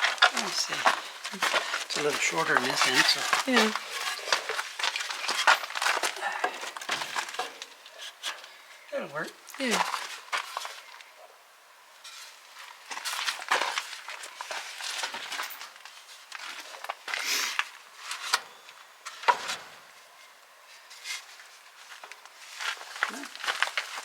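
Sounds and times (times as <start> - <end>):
wooden pieces knocking and scraping: 0.0 - 8.5.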